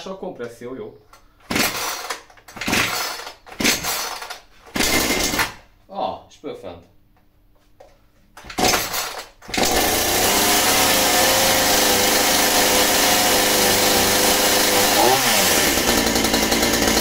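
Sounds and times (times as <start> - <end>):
chainsaw engine starting and running: 1.5 - 5.6, 8.5 - 17.0.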